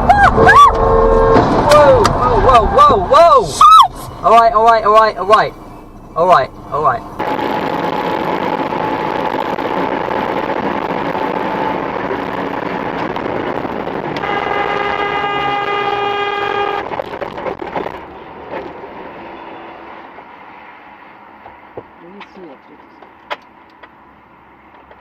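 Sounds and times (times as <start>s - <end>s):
train horn blast: 0.7s - 1.7s, 14.2s - 17.0s.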